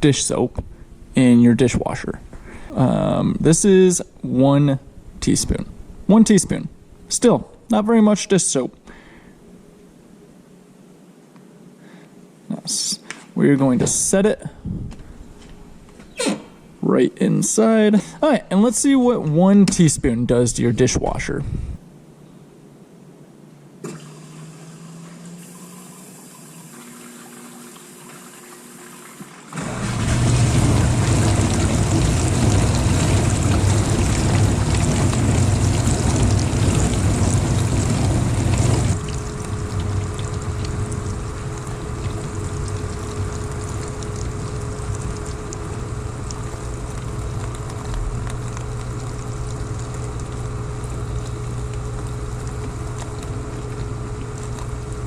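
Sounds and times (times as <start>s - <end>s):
water spraying in dishwasher: 23.8s - 46.4s
dishwasher hum: 23.8s - 55.0s
faint whine: 30.2s - 55.0s.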